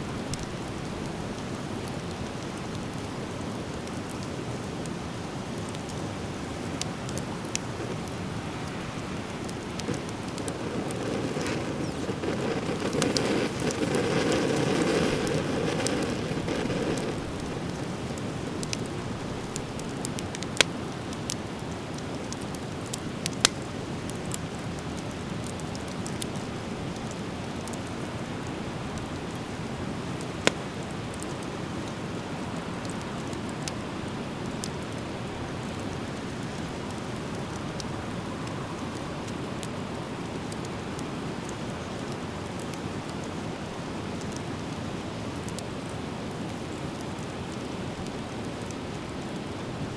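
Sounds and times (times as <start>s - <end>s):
fire hissing and crackling: 0.0s - 49.9s
fire pops: 5.6s - 27.9s, 29.0s - 31.4s.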